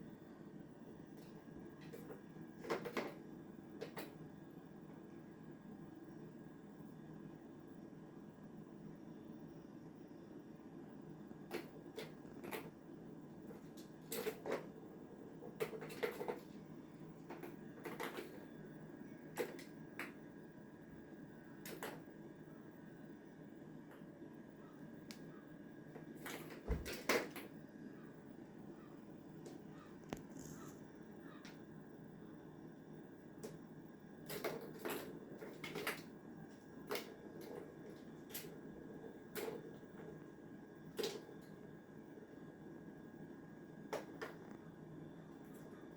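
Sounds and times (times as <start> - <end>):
faint room hum: 0.0 - 45.9
kitten playing clicks and rustles: 1.0 - 5.0, 11.2 - 20.4, 25.0 - 27.6, 29.3 - 31.6, 34.2 - 41.7.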